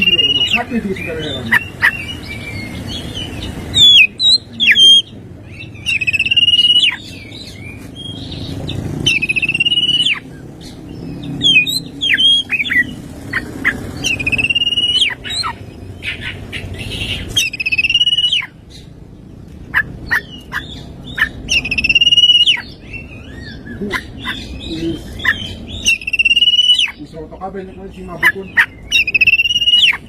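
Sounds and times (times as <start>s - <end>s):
bird singing trilled whistles: 0.0s - 0.7s, 1.4s - 5.1s, 5.8s - 7.6s, 9.1s - 10.2s, 11.3s - 12.9s, 14.0s - 15.6s, 17.4s - 18.5s, 21.5s - 23.6s, 25.4s - 27.0s, 28.8s - 30.0s.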